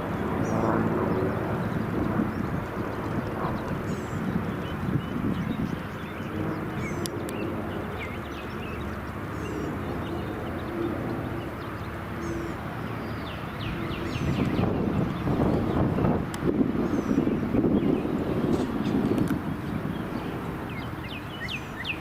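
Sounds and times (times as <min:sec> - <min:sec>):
small birds chirping: 0:00.2 - 0:22.0.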